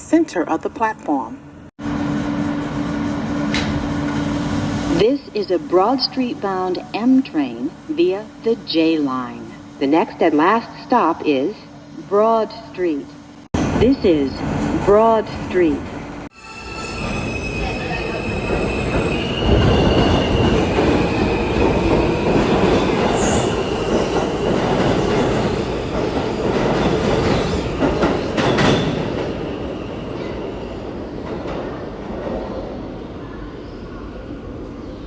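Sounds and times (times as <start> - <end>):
subway car rumble and rattle: 1.4 - 12.1, 13.1 - 35.0
high wheel squeal: 16.3 - 25.9.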